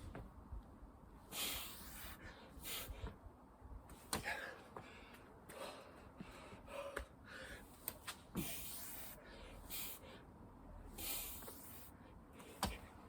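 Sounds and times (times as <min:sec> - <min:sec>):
man breathing hard: 0:04.1 - 0:13.0.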